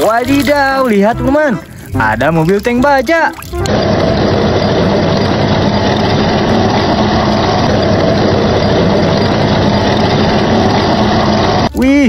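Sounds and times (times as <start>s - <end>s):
model tank driving over gravel: 0.0s - 1.4s.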